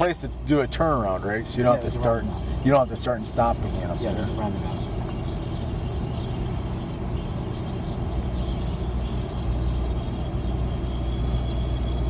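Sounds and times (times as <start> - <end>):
pickup engine running: 0.0 - 6.8
road noise: 0.0 - 12.0.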